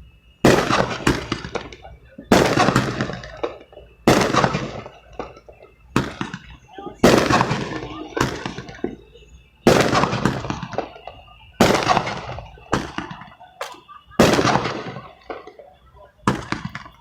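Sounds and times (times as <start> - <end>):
fireworks banging: 0.3 - 17.0.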